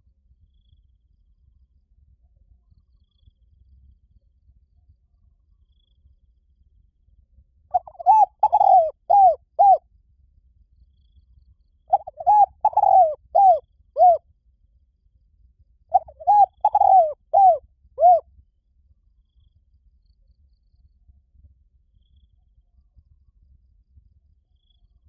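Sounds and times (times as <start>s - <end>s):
dove cooing: 7.7s - 9.8s, 11.9s - 14.2s, 15.9s - 18.2s.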